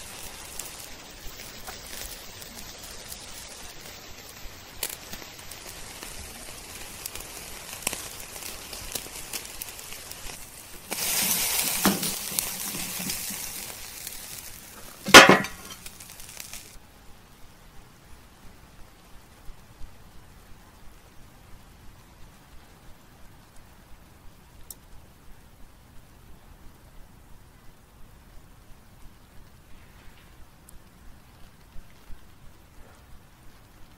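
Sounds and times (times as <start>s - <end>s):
steak sizzling on a grill: 0.0s - 16.8s
metal tongs clinking on grate: 10.9s - 13.6s, 15.0s - 15.9s.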